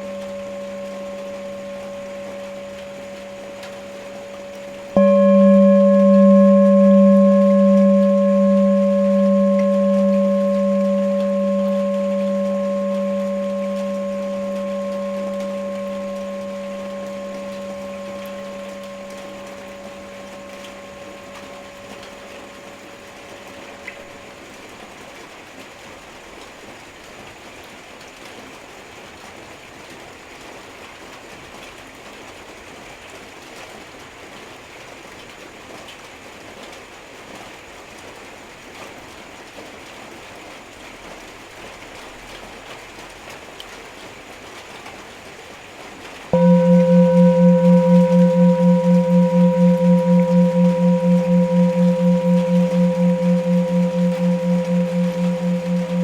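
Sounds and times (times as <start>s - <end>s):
singing bowl ringing: 0.0s - 24.4s, 46.4s - 56.0s.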